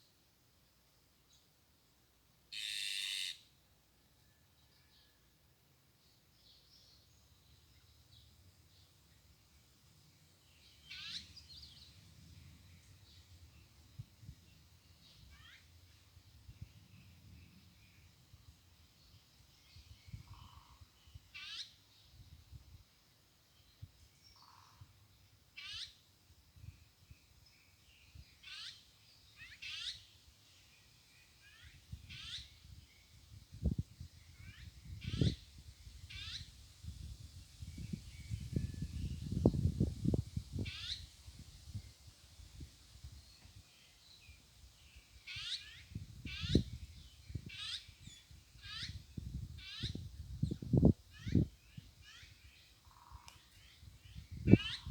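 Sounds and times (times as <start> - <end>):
nuthatch calling: 2.6 - 3.4, 10.8 - 11.8, 25.6 - 26.0, 28.4 - 28.8, 29.4 - 30.1, 36.1 - 36.5, 40.6 - 41.1, 45.3 - 46.7, 47.5 - 49.0, 49.6 - 50.0, 54.5 - 54.9
small bird calls: 2.6 - 3.5, 10.4 - 18.1, 19.0 - 21.8, 24.2 - 24.9, 25.6 - 26.0, 27.6 - 36.6, 37.8 - 42.0, 43.2 - 54.9.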